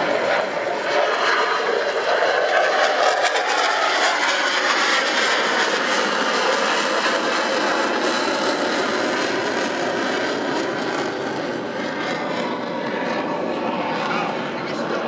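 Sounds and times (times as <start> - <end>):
jet aircraft roaring overhead: 0.0 - 15.0.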